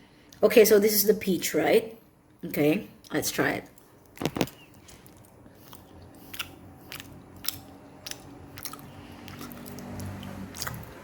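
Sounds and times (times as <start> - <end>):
person chewing: 3.7 - 11.0
wet mouth clicks: 4.3 - 11.0.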